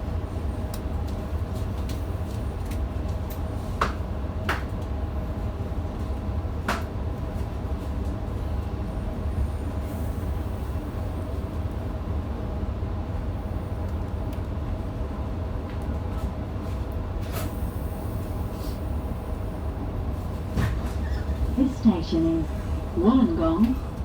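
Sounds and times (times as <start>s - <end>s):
train rumble inside carriage: 0.0s - 24.0s
faint even hum: 21.2s - 23.9s.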